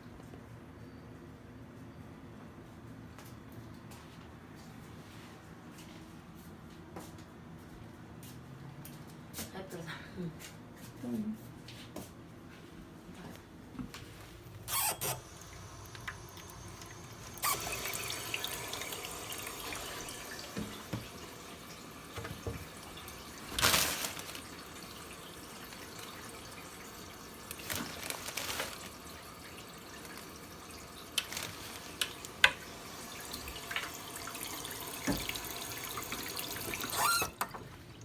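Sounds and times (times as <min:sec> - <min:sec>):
running water rushing: 0:14.7 - 0:38.0.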